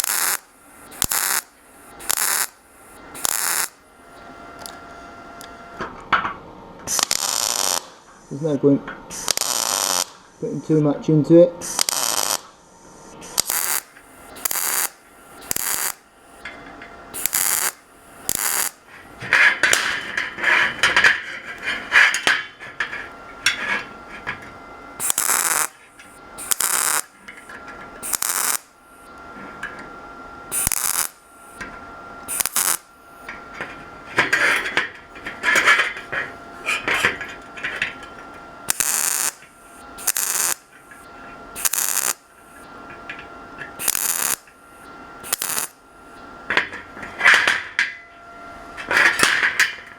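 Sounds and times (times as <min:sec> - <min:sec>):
welding crackling bursts: 0:00.0 - 0:04.8, 0:06.9 - 0:08.0, 0:09.1 - 0:10.3, 0:11.6 - 0:12.5, 0:13.3 - 0:21.0, 0:25.0 - 0:29.2, 0:30.5 - 0:31.6, 0:32.3 - 0:33.3, 0:37.7 - 0:42.7, 0:43.8 - 0:46.2.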